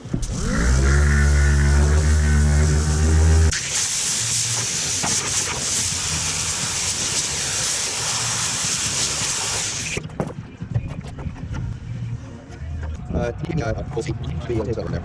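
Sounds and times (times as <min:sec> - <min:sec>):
hiss of escaping air: 0:00.1 - 0:10.0.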